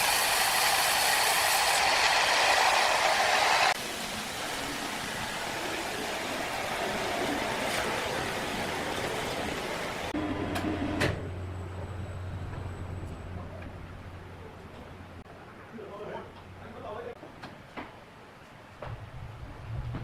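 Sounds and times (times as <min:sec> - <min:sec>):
sawmill machinery running: 0:00.0 - 0:14.2
quieter steady machine noise: 0:00.0 - 0:17.1.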